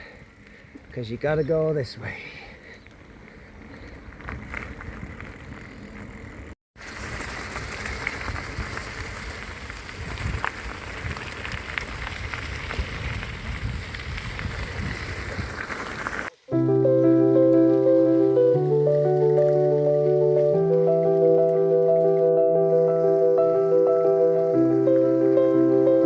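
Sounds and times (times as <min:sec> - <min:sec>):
bicycle tyres on road: 0:00.0 - 0:01.2, 0:01.8 - 0:26.0
wind rushing over microphone: 0:11.9 - 0:15.7.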